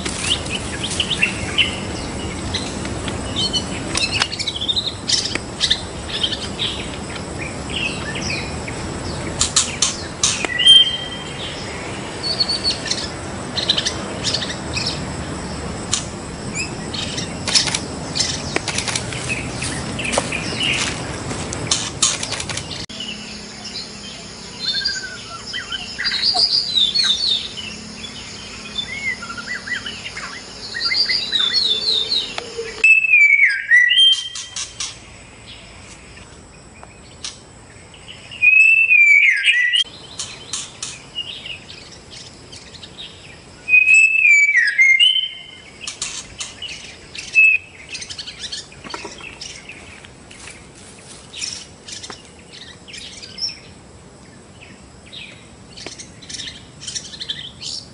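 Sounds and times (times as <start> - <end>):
bird singing whistles: 10.4 - 11.6, 28.2 - 34.6, 38.3 - 39.9, 43.7 - 45.6, 47.2 - 48.5.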